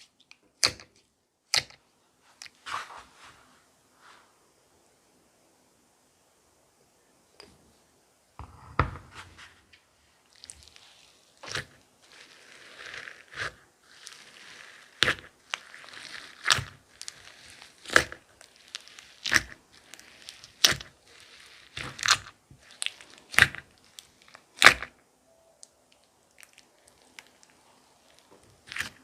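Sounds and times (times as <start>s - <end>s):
slime popping: 10.3s - 24.9s
slime squishing and crackling: 10.3s - 25.0s, 26.0s - 29.0s.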